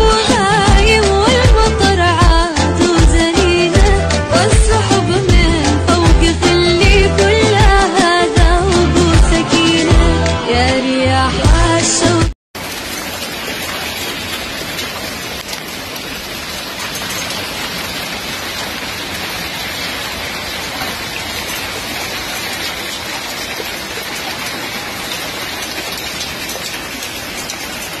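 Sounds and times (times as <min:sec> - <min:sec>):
hailstones ticking: 0:12.6 - 0:28.0
heavy rain hissing: 0:12.6 - 0:28.0.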